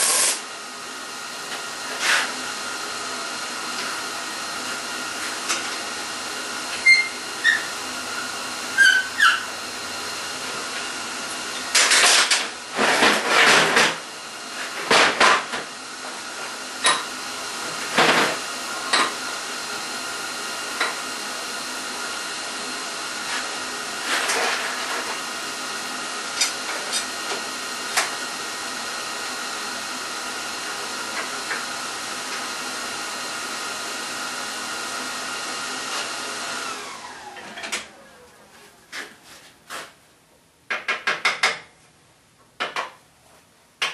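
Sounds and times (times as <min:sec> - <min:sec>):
welder humming: 0:00.0 - 0:00.6.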